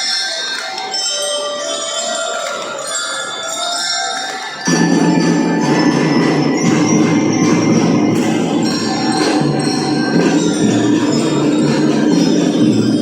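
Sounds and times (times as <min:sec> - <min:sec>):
glockenspiel melody: 0:00.0 - 0:13.0
drum band playing: 0:04.7 - 0:13.0.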